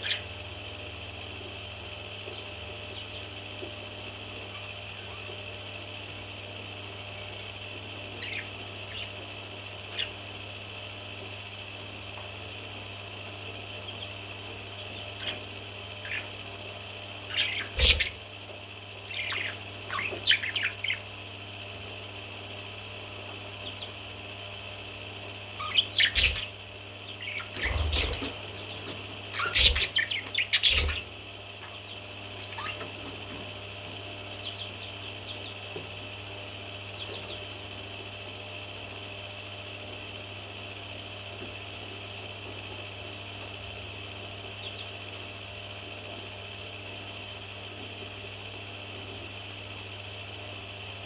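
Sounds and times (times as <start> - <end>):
baby parrots chirping and squawking: 0.0 - 0.4, 8.2 - 9.2, 9.9 - 10.2, 15.0 - 16.4, 17.3 - 18.2, 19.1 - 21.1, 25.6 - 32.9
steady low hum: 0.0 - 51.0.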